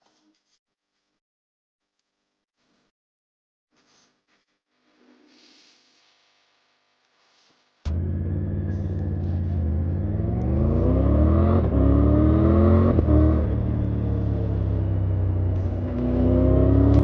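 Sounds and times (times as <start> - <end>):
motorcycle engine accelerating: 7.9 - 17.0.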